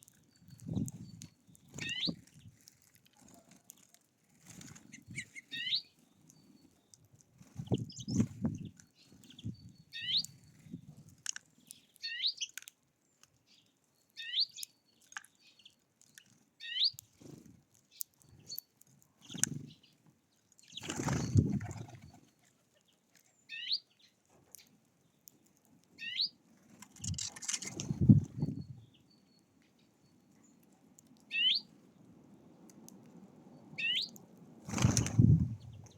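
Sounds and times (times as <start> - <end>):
bird wing flutters: 20.8 - 22.2, 26.7 - 28.5, 34.6 - 35.9.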